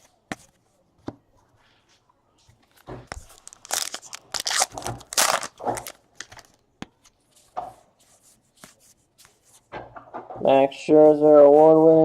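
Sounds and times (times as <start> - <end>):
card wrapper crinkling: 3.1 - 6.6.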